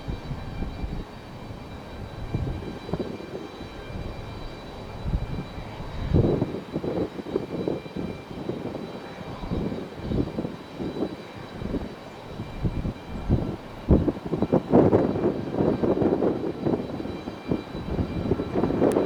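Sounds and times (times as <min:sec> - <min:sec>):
faint high whine: 0:00.0 - 0:19.0
jet engine rumble: 0:00.0 - 0:19.0.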